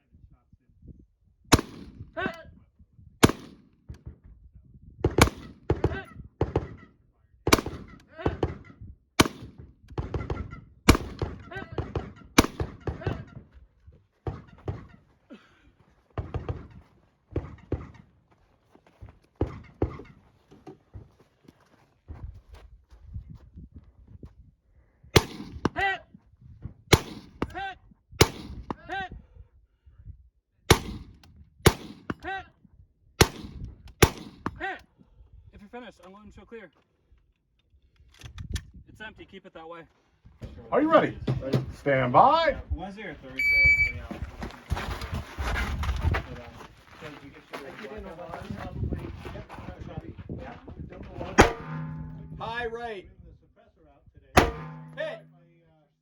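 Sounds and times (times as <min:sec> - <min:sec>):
loud rifle shots: 0:01.5 - 0:02.0, 0:03.2 - 0:03.6, 0:05.1 - 0:05.8, 0:07.5 - 0:08.6, 0:09.2 - 0:09.6, 0:10.2 - 0:13.0, 0:25.2 - 0:25.8, 0:26.9 - 0:27.4, 0:30.7 - 0:31.1, 0:31.7 - 0:32.2, 0:33.2 - 0:34.4, 0:51.4 - 0:52.4, 0:54.4 - 0:55.2
faint distant gunshots: 0:09.2 - 0:13.2, 0:51.4 - 0:52.4
steel target ringing ping: 0:51.4 - 0:52.6, 0:54.4 - 0:55.6.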